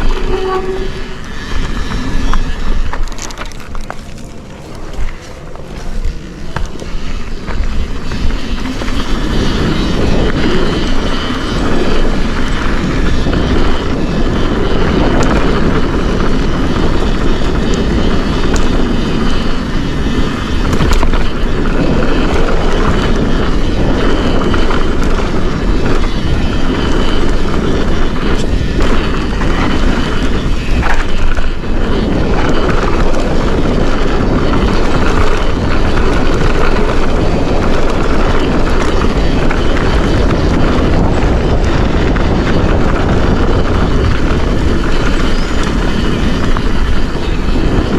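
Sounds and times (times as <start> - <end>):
bike clicks and rattles: 0.0 - 47.9
wind rushing: 0.0 - 47.9
tyre rumble over dirt: 1.3 - 11.3.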